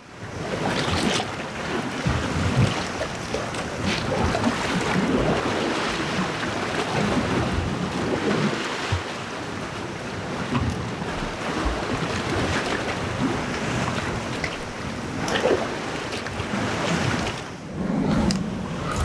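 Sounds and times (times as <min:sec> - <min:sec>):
sea waves washing against rocks: 0:00.4 - 0:08.9, 0:10.9 - 0:19.0
wind buffeting microphone: 0:17.6 - 0:19.0.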